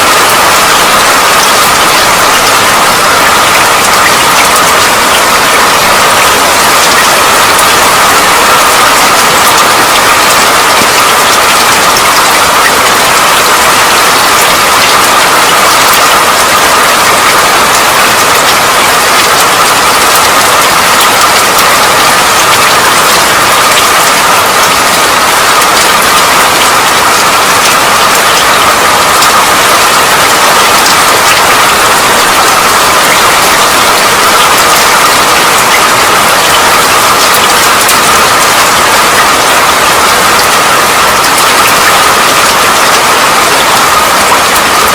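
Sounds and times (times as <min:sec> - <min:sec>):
steady rain hissing: 0:00.0 - 0:44.9.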